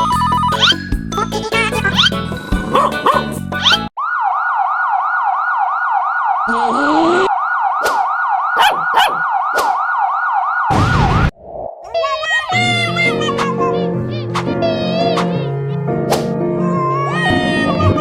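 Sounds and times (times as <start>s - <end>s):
emergency siren yelping: 3.6s - 11.2s.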